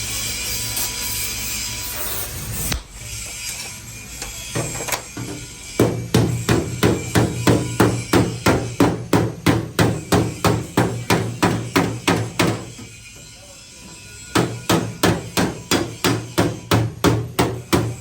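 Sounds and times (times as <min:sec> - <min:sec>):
hammer striking sheet metal: 0:05.8 - 0:12.9, 0:14.3 - 0:18.0.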